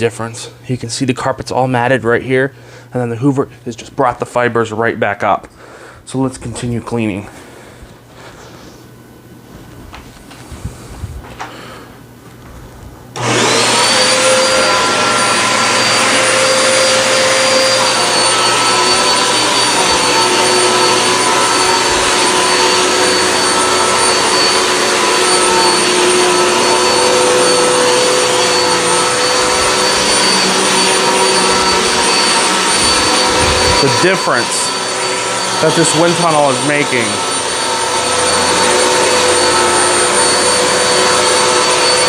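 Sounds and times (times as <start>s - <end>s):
upright vacuum cleaner running: 13.0s - 42.0s.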